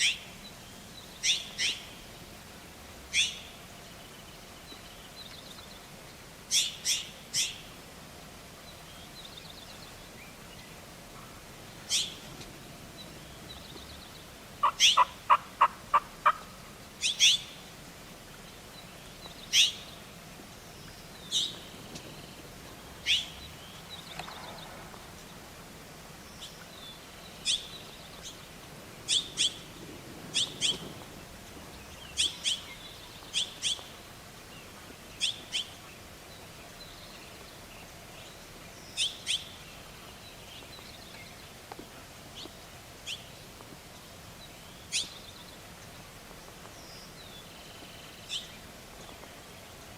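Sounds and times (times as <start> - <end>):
turkey yelps: 14.6 - 16.5.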